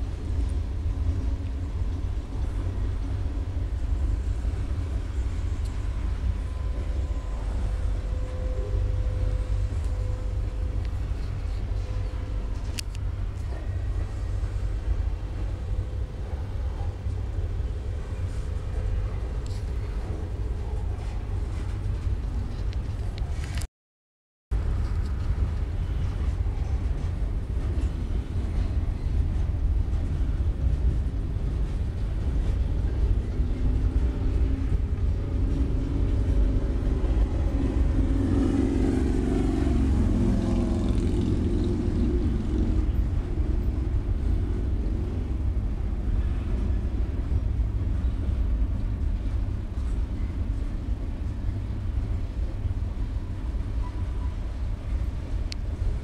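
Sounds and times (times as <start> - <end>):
freight train cars rumbling: 0.0 - 23.7, 24.5 - 56.0.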